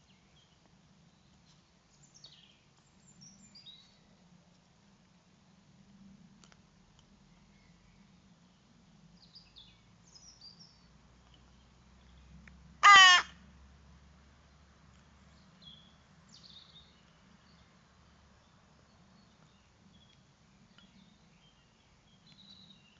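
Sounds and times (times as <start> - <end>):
small birds chirping: 0.0 - 4.2, 6.4 - 13.2, 14.9 - 22.9
loud bird call: 12.8 - 13.3.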